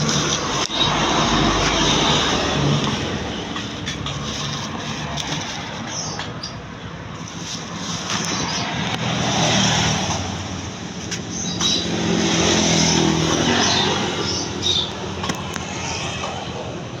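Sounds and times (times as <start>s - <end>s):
two-stroke motorcycle engine revving: 8.2s - 16.8s.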